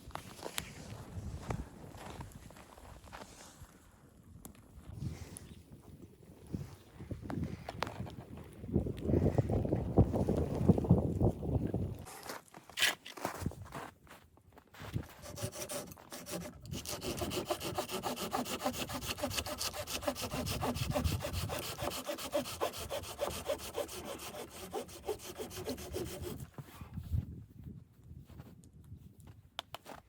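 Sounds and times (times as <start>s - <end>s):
hand saw cutting wood: 15.0s - 26.5s.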